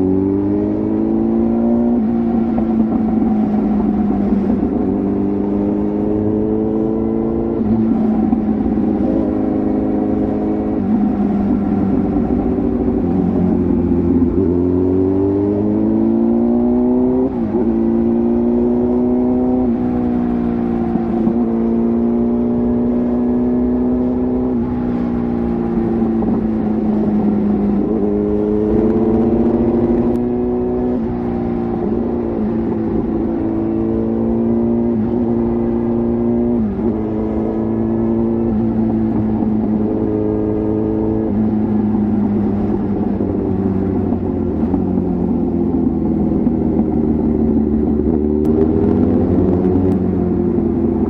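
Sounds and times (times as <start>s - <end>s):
motorcycle exhaust revving: 0.0s - 51.0s.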